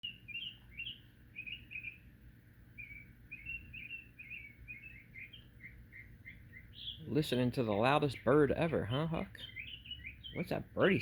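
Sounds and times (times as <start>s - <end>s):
songbird chirping quickly: 0.0s - 11.0s.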